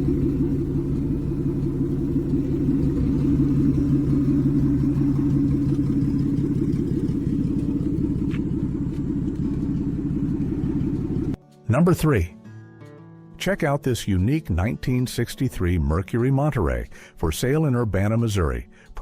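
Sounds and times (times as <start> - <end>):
car engine running: 0.0 - 11.4.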